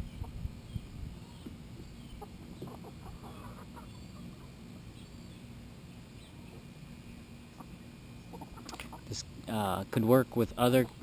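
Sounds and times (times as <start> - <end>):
chickens clucking softly: 0.0 - 4.6, 7.5 - 9.3.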